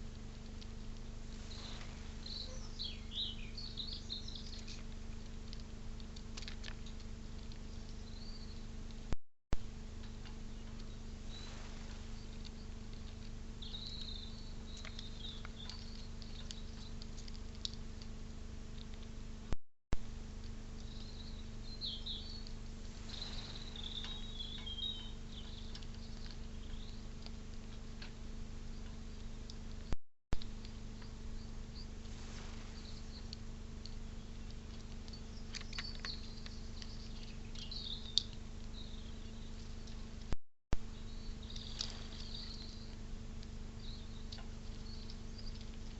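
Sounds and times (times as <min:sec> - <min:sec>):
steady electrical hum: 0:00.0 - 0:45.9
birds chirping and twittering: 0:00.4 - 0:09.1, 0:09.9 - 0:19.1, 0:20.2 - 0:45.9
distant songbird call: 0:01.4 - 0:04.8, 0:20.8 - 0:27.0
faint clicks and scratches: 0:04.1 - 0:09.2, 0:09.9 - 0:19.6.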